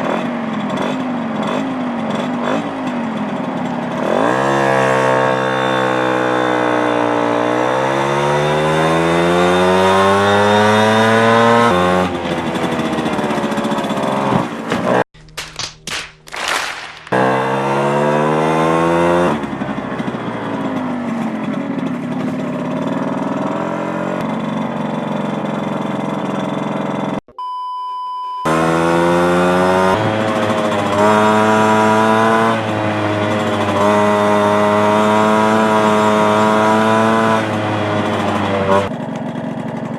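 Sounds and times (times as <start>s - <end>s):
moped two-stroke engine revving: 0.0s - 15.1s, 17.0s - 27.2s, 28.5s - 39.9s
steady beep: 27.3s - 28.5s.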